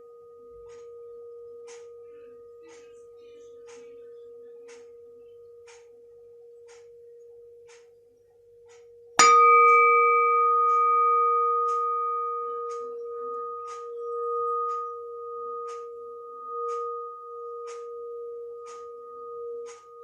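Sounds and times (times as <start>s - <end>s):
clock ticking: 5.7s - 5.9s, 6.7s - 6.9s.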